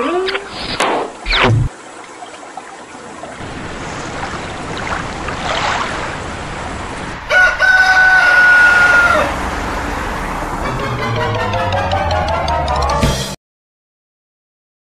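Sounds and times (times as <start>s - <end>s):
rushing noise: 3.4s - 11.6s
rooster crow sound effect: 7.2s - 9.6s.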